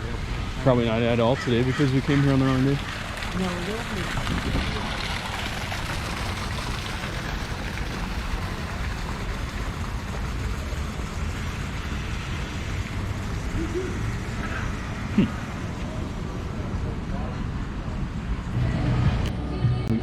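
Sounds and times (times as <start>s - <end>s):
wind buffeting microphone: 3.0s - 9.3s.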